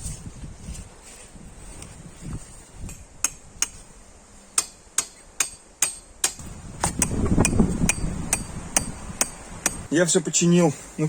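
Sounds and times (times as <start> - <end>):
hammer blows: 4.6 - 9.9.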